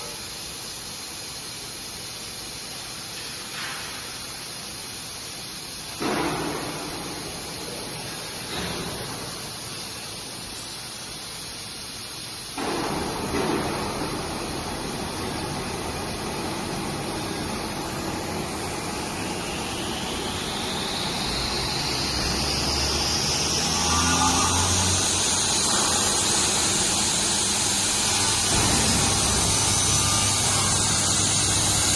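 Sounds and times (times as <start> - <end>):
saw machine hissing: 13.0 - 31.9
rising whine: 13.8 - 31.9.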